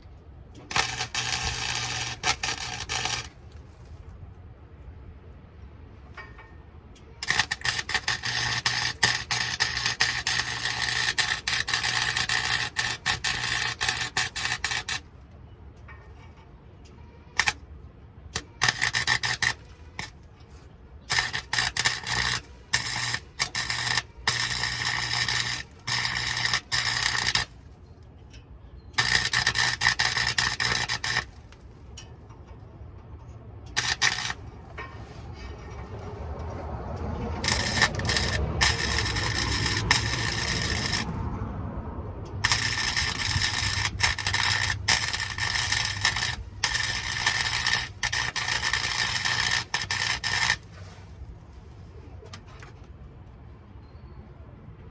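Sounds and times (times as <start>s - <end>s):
low electrical hum: 0.0s - 54.9s
welding arc crackling: 0.6s - 3.4s, 7.2s - 15.0s, 17.4s - 17.6s, 18.4s - 20.2s, 21.0s - 27.6s, 29.0s - 31.6s, 33.7s - 34.4s, 37.4s - 41.2s, 42.3s - 50.7s.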